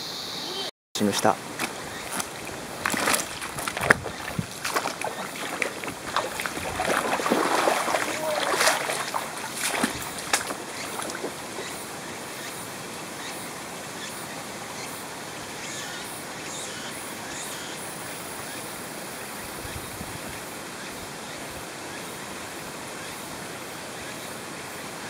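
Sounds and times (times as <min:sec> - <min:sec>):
mountain stream rushing: 0:01.0 - 0:17.2
water splashing: 0:01.2 - 0:12.3.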